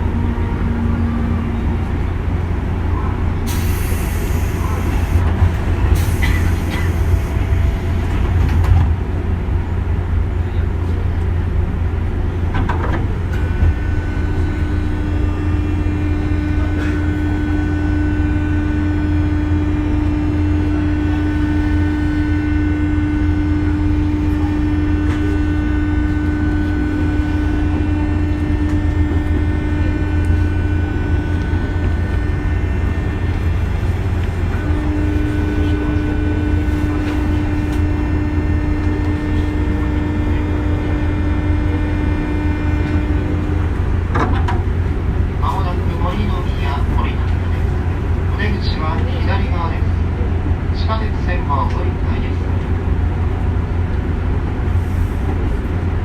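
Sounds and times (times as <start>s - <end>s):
train cabin rumble: 0.0s - 56.0s
hum-like tone: 13.4s - 44.4s.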